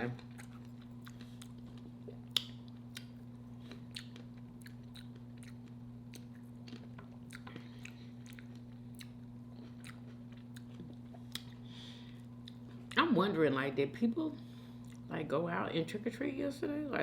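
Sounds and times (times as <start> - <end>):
person chewing food: 0.0 - 13.0
steady low hum: 0.0 - 17.0.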